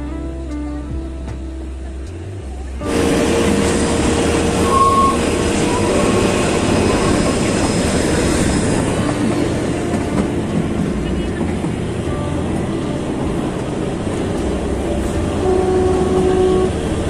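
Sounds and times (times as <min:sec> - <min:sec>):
train carriages rumbling and rattling: 0:00.0 - 0:17.0
high squeal: 0:02.8 - 0:09.8.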